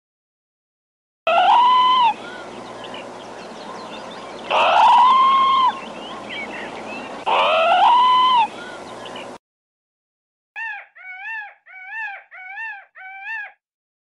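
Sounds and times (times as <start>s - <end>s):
animal call rising in pitch: 1.3s - 2.2s, 4.5s - 5.9s, 7.2s - 8.6s, 10.6s - 13.6s.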